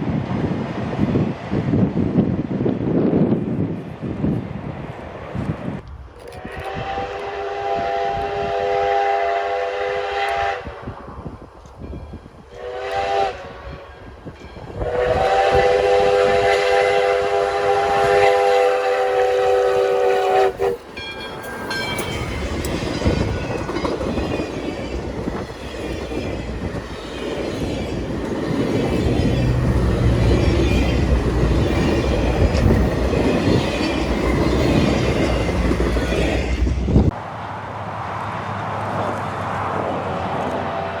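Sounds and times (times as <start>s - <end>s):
train rumbling and clattering: 0.0s - 8.9s, 10.2s - 37.2s
locomotive chime whistle: 12.6s - 36.6s.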